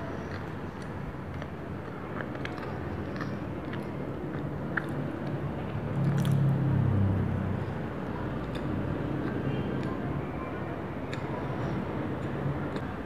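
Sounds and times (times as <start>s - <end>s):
biting and chewing sandwich: 0.0s - 6.6s.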